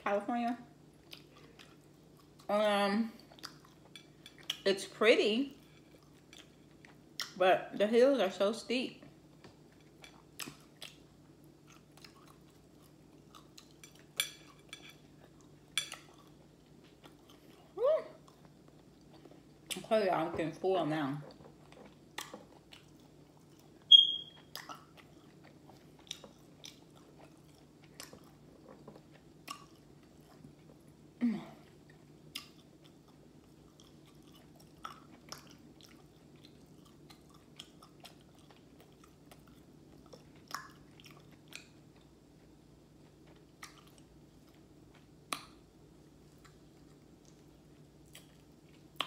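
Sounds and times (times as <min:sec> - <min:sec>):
chewing crispy chicken: 0:00.9 - 0:04.7, 0:09.2 - 0:19.9, 0:21.2 - 0:49.0
high-pitched squeak: 0:23.9 - 0:24.4.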